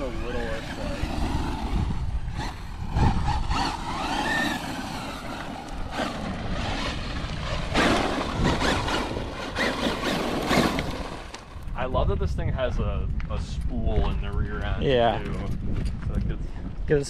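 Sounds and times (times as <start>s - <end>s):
rc truck motor whining: 0.0s - 11.7s
tyres scrabbling on dirt: 3.3s - 11.6s.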